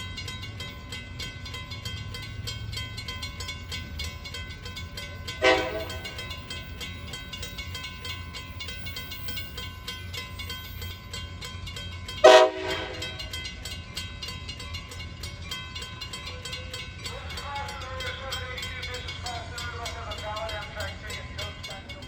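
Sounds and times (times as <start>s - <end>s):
train horn blast: 5.4s - 6.2s, 12.2s - 13.2s.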